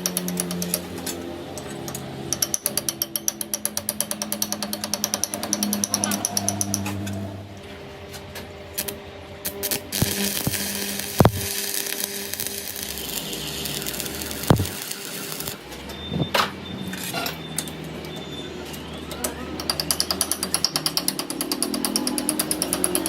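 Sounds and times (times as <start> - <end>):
rapid rhythmic hammering: 0.0 - 6.9, 10.0 - 11.6, 13.6 - 15.6, 19.6 - 23.0
sharp metal knocks: 0.0 - 7.1, 14.5 - 14.7, 19.6 - 23.0
machine noise: 0.0 - 8.1, 8.7 - 23.0.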